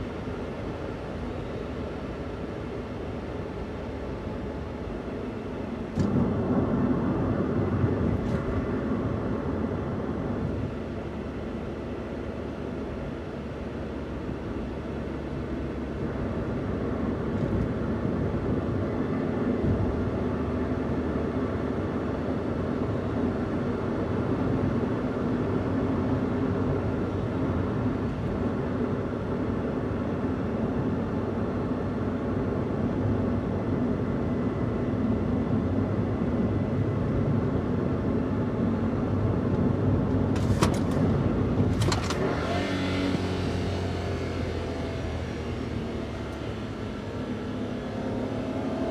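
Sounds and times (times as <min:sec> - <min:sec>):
road noise: 0:00.0 - 0:48.9
van engine running: 0:27.3 - 0:48.9.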